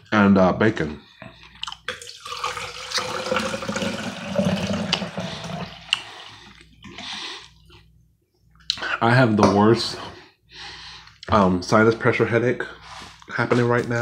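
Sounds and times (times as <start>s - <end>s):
wet chewing and mouth clicks: 1.3s - 2.0s, 5.9s - 7.8s.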